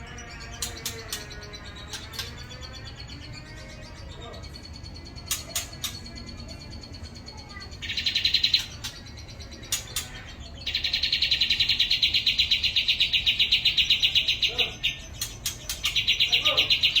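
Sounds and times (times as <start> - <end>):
bird singing buzzing trill: 0.0 - 17.0
sharp clicks: 5.2 - 6.1.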